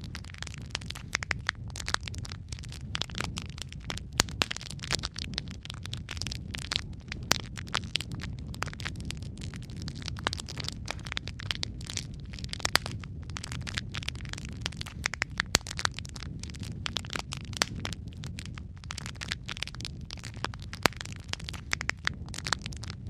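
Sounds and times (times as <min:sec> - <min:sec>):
burning logs crackling and popping: 0:00.0 - 0:23.0
low rumble of flames: 0:00.0 - 0:23.0.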